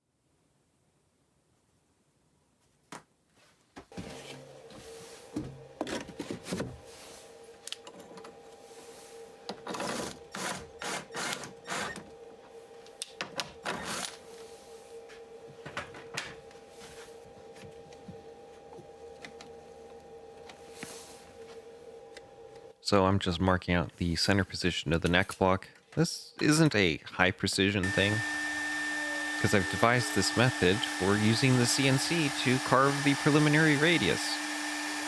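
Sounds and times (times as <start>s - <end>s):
steady machine hum: 27.8s - 35.0s.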